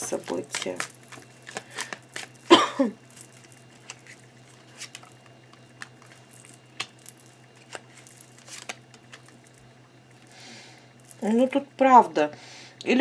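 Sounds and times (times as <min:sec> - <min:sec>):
cards shuffling: 0:00.0 - 0:09.6, 0:11.0 - 0:11.5
steady low hum: 0:00.0 - 0:13.0.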